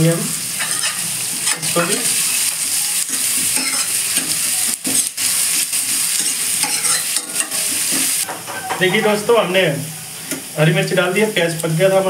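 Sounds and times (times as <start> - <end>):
vegetables sizzling in hot oil: 0.0 - 12.0
ladle scraping a steel pan: 0.6 - 1.7, 6.1 - 8.3.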